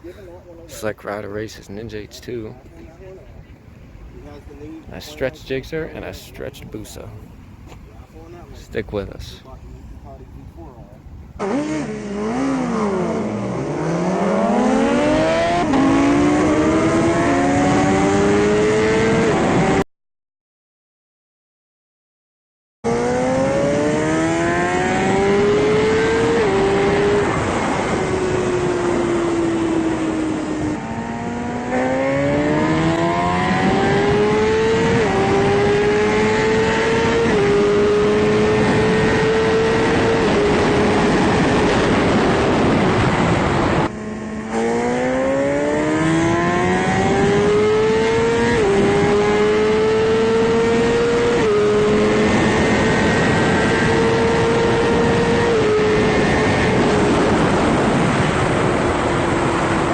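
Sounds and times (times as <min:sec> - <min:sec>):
motorcycle engines revving: 0:00.0 - 0:19.8, 0:22.9 - 0:59.9.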